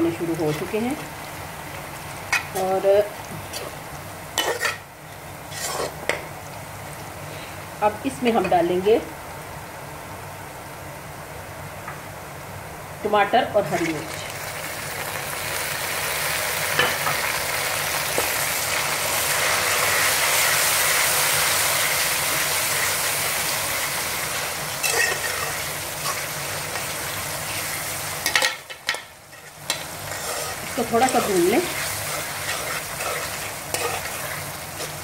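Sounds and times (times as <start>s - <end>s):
vegetables sizzling in hot oil: 0.0s - 11.2s, 12.0s - 35.0s
steel spoon scraping pan: 4.4s - 4.8s, 5.5s - 6.1s, 24.8s - 26.9s, 28.2s - 35.0s.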